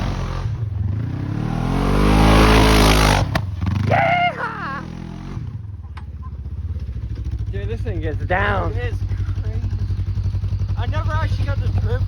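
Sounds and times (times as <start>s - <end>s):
engine revving and idling: 0.0s - 12.0s
person yelling: 3.8s - 4.9s.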